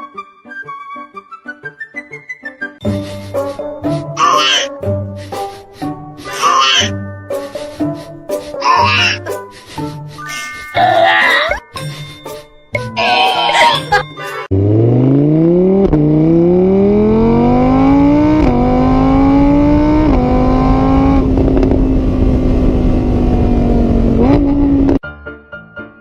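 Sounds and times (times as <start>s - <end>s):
car engine accelerating: 14.5s - 25.0s.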